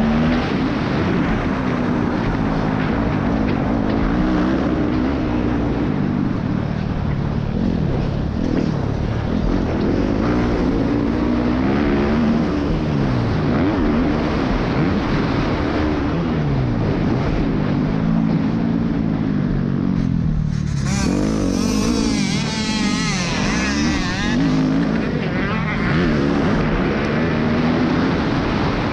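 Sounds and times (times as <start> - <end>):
motorcycle engine revving: 0.0 - 28.9
wind and road noise: 0.0 - 28.9
high wavering sound: 20.4 - 24.7.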